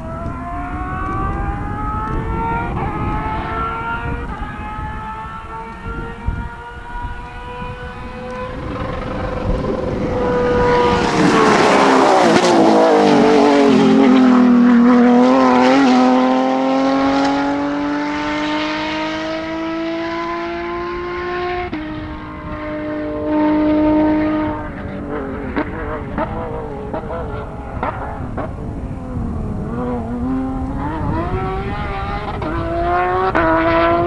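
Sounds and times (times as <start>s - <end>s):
rally car engine passing: 0.0s - 34.0s.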